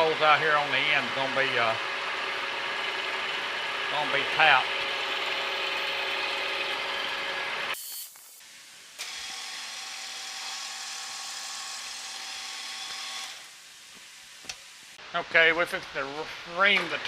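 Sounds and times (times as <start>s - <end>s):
drill drilling into metal: 4.7s - 8.4s, 9.0s - 13.6s.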